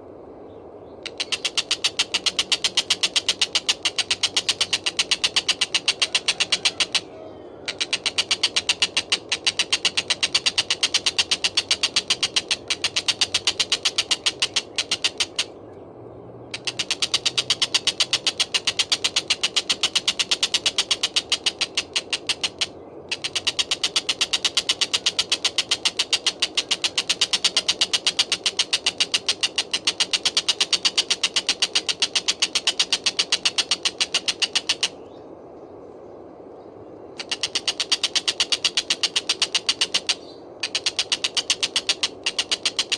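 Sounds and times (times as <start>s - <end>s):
kingfisher chattering rattle: 1.0s - 15.6s, 16.4s - 35.0s, 37.1s - 42.9s.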